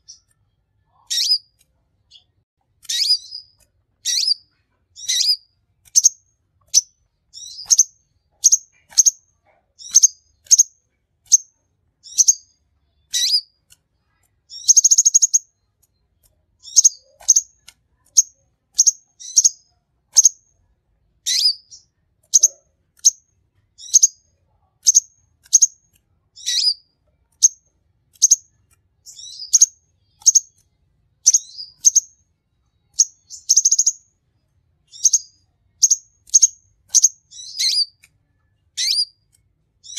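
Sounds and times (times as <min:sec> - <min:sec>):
bird chirping: 0:00.0 - 0:20.5, 0:21.2 - 0:39.9
buzzy bird trill: 0:00.9 - 0:10.7, 0:11.3 - 0:13.6, 0:14.5 - 0:15.6, 0:16.6 - 0:20.4, 0:21.3 - 0:23.2, 0:23.8 - 0:24.2, 0:26.4 - 0:27.6, 0:28.2 - 0:30.6, 0:31.2 - 0:32.2, 0:32.9 - 0:34.1, 0:34.9 - 0:38.0, 0:38.7 - 0:39.2.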